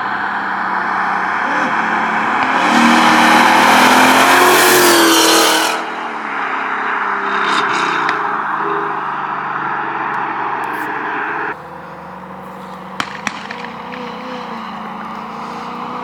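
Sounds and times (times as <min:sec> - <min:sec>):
car exhaust revving: 0:00.0 - 0:16.0.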